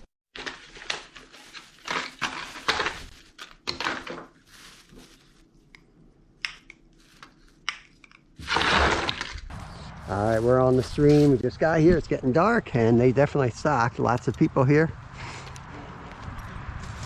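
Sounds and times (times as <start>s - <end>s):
objects knocking and rustling: 0.4s - 5.8s, 6.4s - 9.5s.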